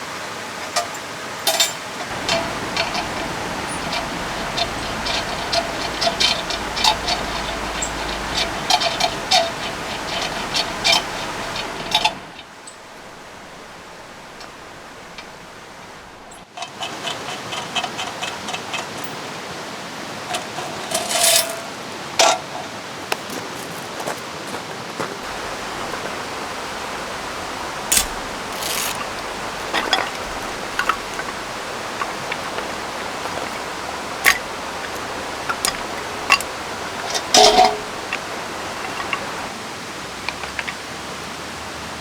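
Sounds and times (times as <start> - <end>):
flowing river: 0.0 - 42.0
clicks and metallic knocks: 0.8 - 12.5, 20.3 - 22.4, 25.2 - 39.5
rain rushing: 1.2 - 42.0.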